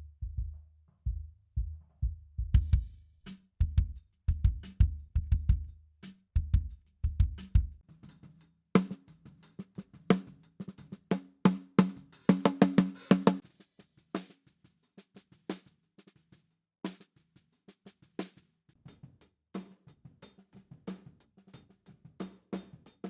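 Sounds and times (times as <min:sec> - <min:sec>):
drum kit playing: 0:11.5 - 0:13.5.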